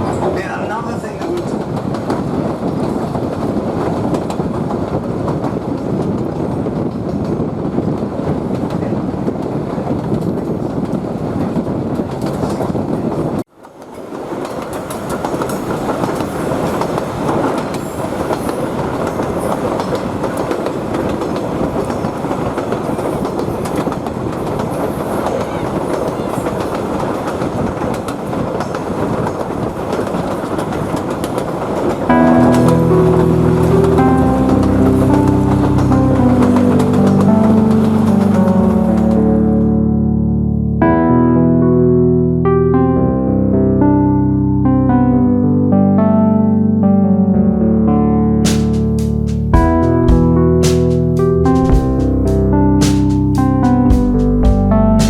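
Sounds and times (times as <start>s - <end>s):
train wheels rumbling on rails: 0.0s - 39.7s, 48.5s - 54.6s.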